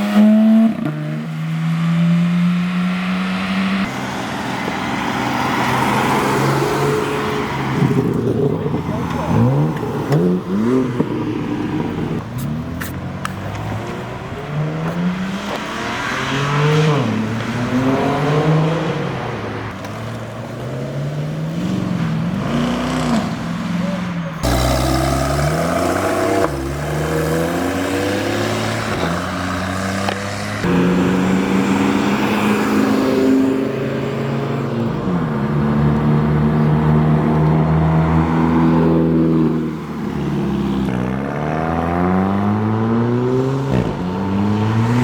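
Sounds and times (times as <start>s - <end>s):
car engines revving: 0.0s - 45.0s.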